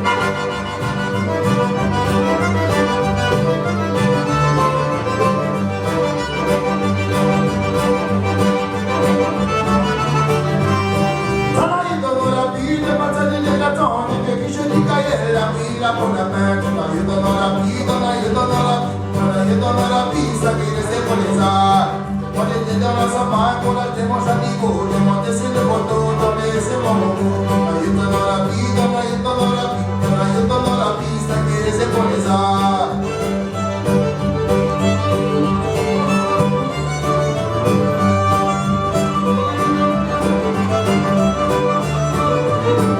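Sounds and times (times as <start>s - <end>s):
accordion: 0.0s - 42.9s
bass line: 0.0s - 42.9s
fiddle: 0.0s - 42.9s
string band playing live: 0.0s - 42.9s
strummed guitar: 0.0s - 42.9s.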